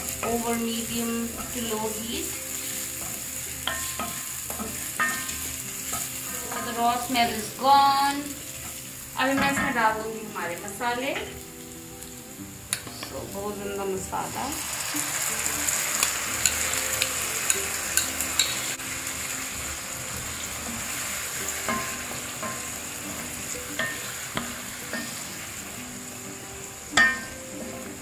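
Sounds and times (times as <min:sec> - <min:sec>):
food sizzling in a frying pan: 0:00.0 - 0:28.0
spatula scraping a pan: 0:01.4 - 0:07.1, 0:18.0 - 0:18.8.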